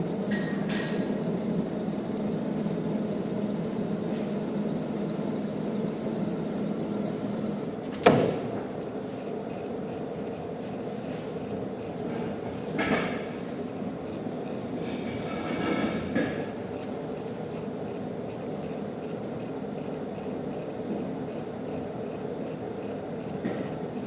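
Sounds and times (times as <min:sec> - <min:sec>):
metal lathe humming: 0:00.0 - 0:07.9.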